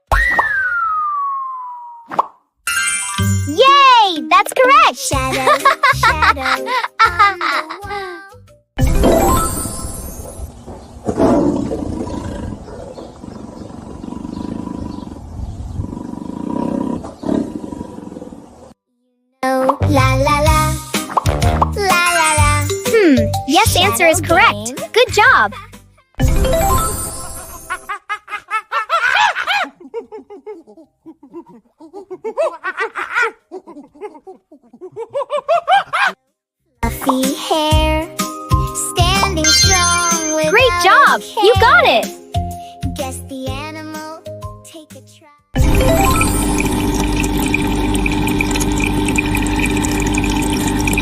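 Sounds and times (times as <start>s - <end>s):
big cat roaring: 11.2s - 18.7s.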